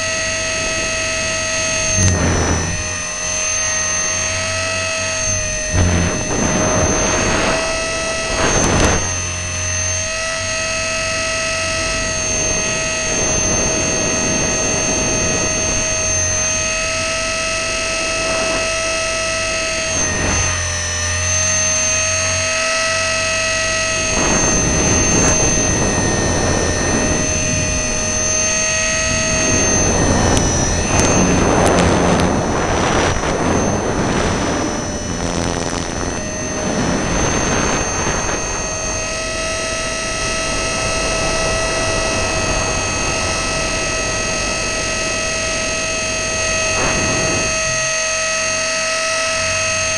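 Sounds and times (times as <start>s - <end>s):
rc helicopter motor whining: 0.0s - 49.9s
rushing air gusts: 0.5s - 4.4s, 5.0s - 9.7s, 23.8s - 48.0s.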